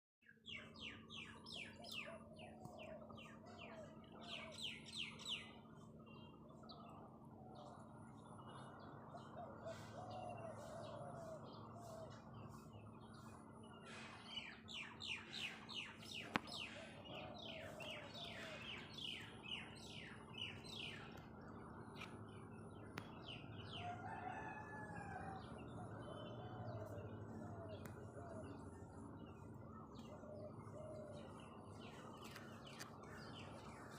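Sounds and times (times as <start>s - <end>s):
faint steady hum: 0.4s - 33.9s
birds chirping: 7.6s - 33.9s.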